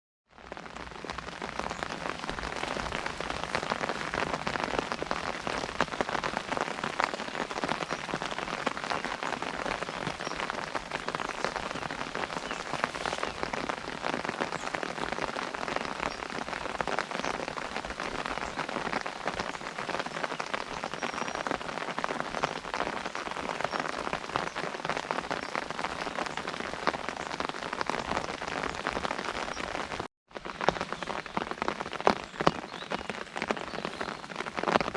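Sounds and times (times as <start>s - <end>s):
rain pattering on umbrella: 0.3s - 34.9s.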